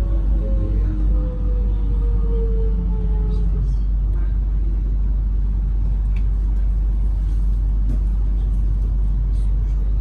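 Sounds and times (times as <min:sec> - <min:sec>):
train carriage rumble: 0:00.0 - 0:10.0.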